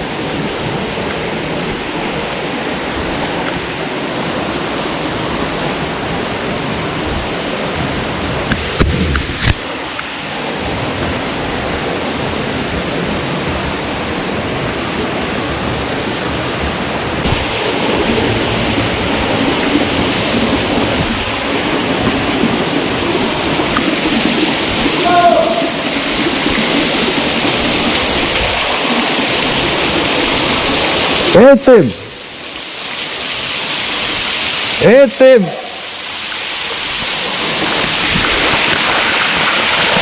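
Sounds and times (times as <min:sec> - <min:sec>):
stream water rushing: 0:00.0 - 0:40.0
brief voice-like sound: 0:25.0 - 0:25.8.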